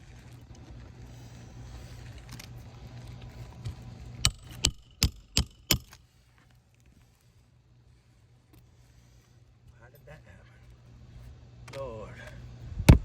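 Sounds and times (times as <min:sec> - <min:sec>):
steady low hum: 0:00.0 - 0:13.0
metal tool knocking on shingles: 0:04.3 - 0:06.0.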